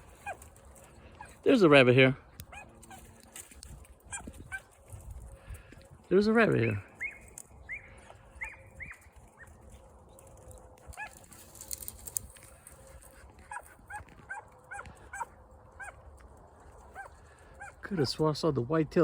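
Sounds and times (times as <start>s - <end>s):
dogs barking in high yips: 0.0s - 1.4s, 2.4s - 3.2s, 4.0s - 4.8s, 6.6s - 9.6s, 10.8s - 11.4s, 13.4s - 16.1s, 16.8s - 17.8s.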